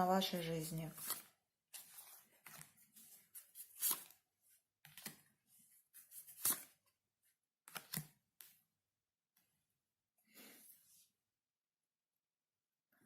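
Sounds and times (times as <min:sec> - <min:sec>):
cards rustling and tapping: 0:00.9 - 0:04.2, 0:04.8 - 0:05.3, 0:06.0 - 0:06.9, 0:07.7 - 0:08.6.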